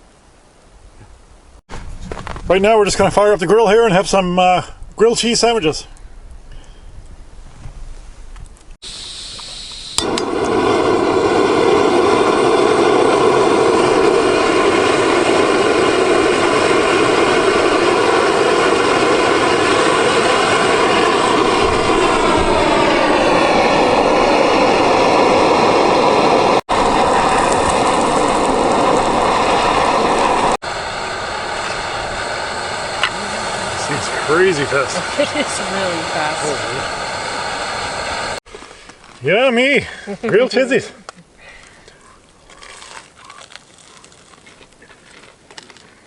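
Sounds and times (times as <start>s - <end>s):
gas burner roaring: 8.8s - 38.4s.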